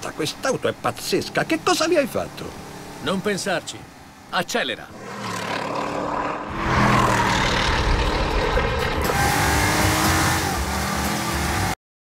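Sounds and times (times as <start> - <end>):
road noise: 0.0 - 11.8
car engine accelerating hard: 5.4 - 11.8.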